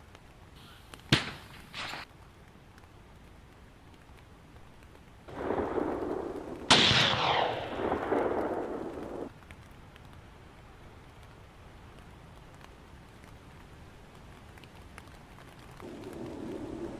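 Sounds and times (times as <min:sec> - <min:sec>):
rumbling noise: 0:05.3 - 0:09.3, 0:15.8 - 0:16.9
loud blast: 0:05.4 - 0:09.3.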